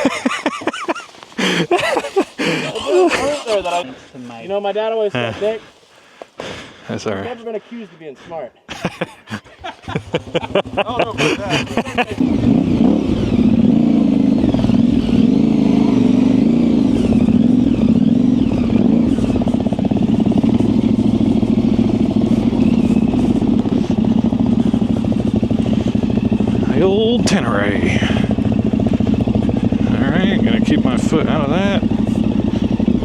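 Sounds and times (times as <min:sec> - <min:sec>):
motorcycle engine running: 0:09.7 - 0:33.0.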